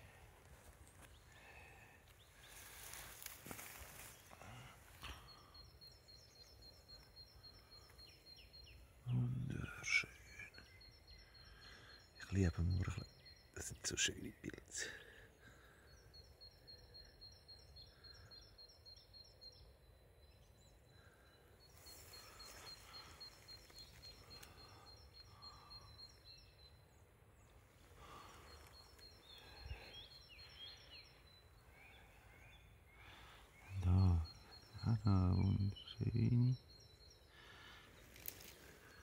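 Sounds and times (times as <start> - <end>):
faint birdsong: 0.0 - 39.0
footsteps through grass and leaves: 2.2 - 4.4, 21.7 - 24.6, 38.0 - 38.9.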